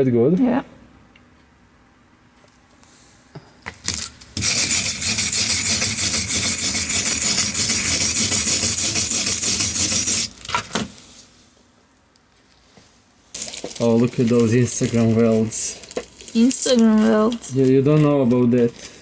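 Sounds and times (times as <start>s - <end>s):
wire brush scraping metal: 4.4s - 10.3s.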